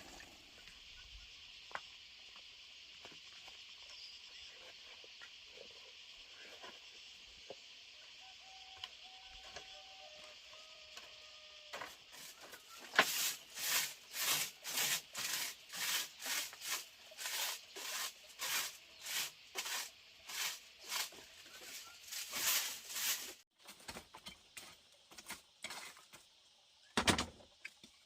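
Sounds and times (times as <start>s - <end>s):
rhythmic scraping strokes: 12.1s - 23.4s.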